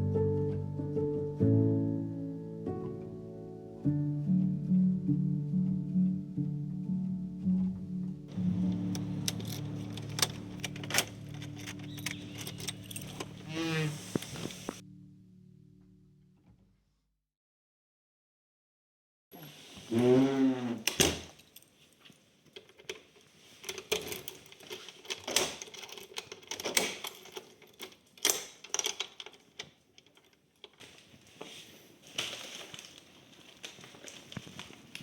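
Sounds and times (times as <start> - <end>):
small hard objects clattering: 8.3 - 14.8, 29.0 - 35.0.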